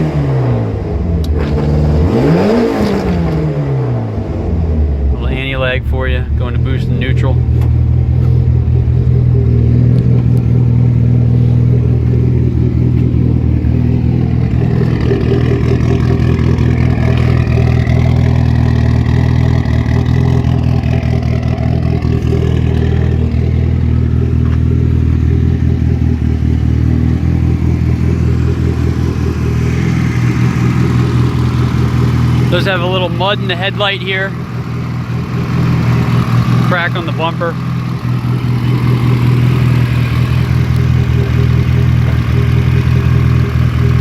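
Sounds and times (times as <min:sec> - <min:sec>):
rally car engine anti-lag firing: 0:00.0 - 0:04.6.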